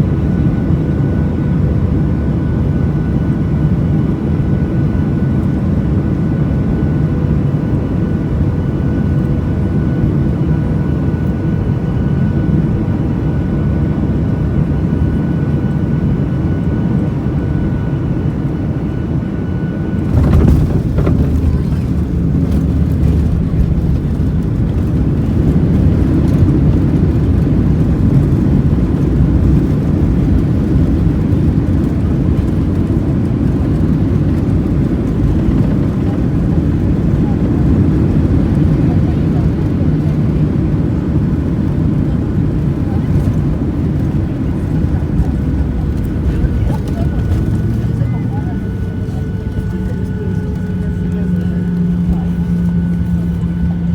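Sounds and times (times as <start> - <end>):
jet engines whining: 0.0 - 53.9
landing roll rumble and rattling: 20.0 - 27.4.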